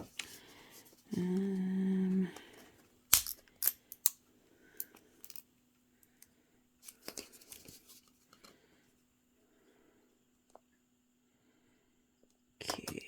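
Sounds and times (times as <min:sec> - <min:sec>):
packaging snips and clicks: 0:03.1 - 0:04.2.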